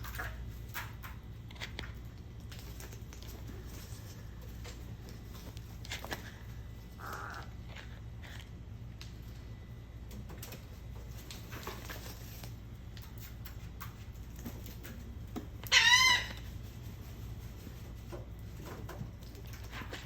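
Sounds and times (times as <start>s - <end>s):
steady low hum: 0.0s - 20.0s
harsh bird call: 15.7s - 16.4s.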